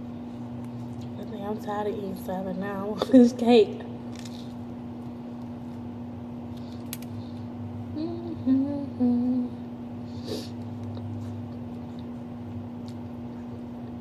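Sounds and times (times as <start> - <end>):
steady electrical hum: 0.0 - 14.0
woman humming: 7.9 - 9.7.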